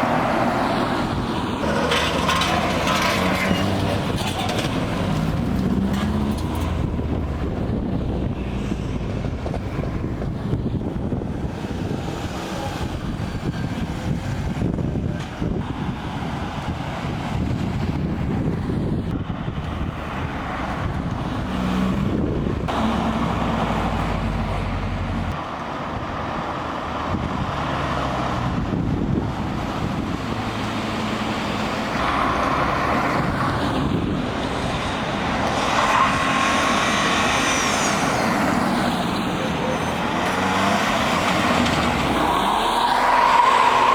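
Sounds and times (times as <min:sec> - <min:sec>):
heavy low engine rumble: 0:00.0 - 0:16.4
cars driving past: 0:00.0 - 0:43.9.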